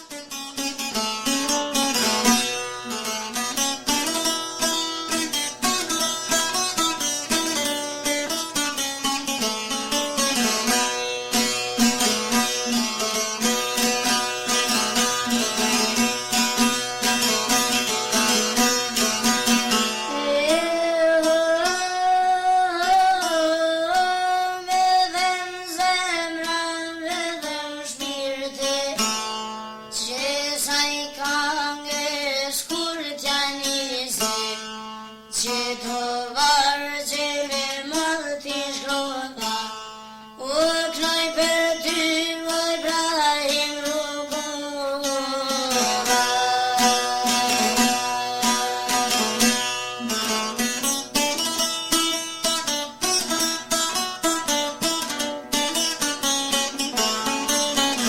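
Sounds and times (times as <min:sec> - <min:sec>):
girl singing folk song: 0:00.0 - 0:58.0
plucked-string accompaniment: 0:00.0 - 0:58.0.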